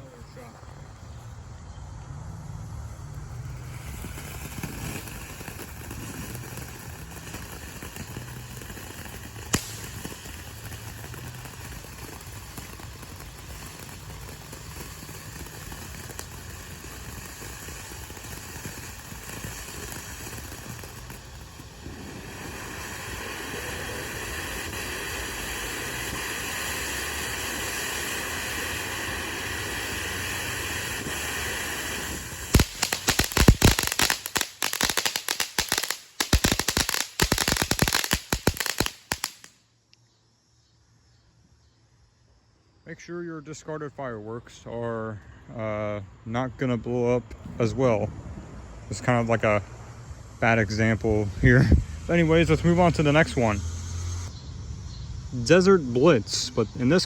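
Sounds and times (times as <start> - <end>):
firework fountain hissing: 0.0 - 39.9, 47.4 - 57.0
sharp pop: 9.5 - 10.2, 32.6 - 34.4.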